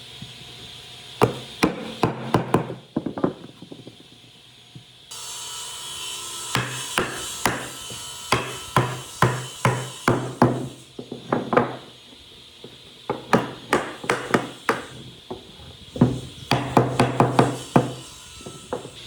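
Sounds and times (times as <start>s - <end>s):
hammer striking wood: 1.2s - 4.0s, 6.5s - 12.0s, 12.6s - 19.0s.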